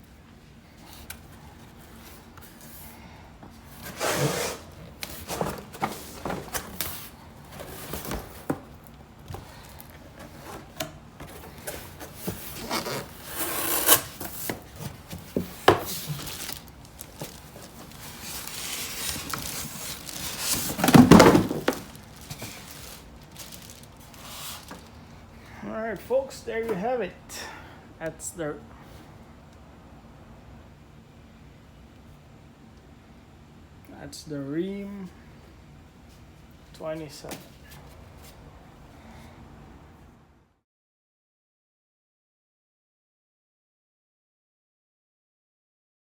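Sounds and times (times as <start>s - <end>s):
cardboard rubbing and scraping: 3.8s - 8.6s, 10.0s - 24.8s.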